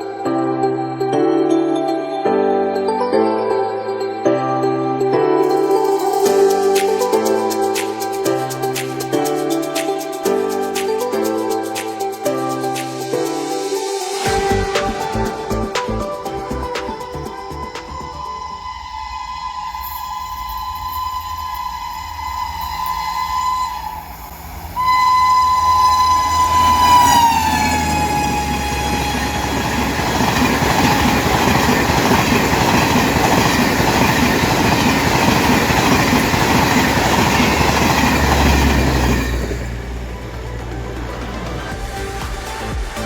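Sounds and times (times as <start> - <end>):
train coaches rushing past: 18.8 - 43.0
locomotive horn blasts: 24.8 - 30.0.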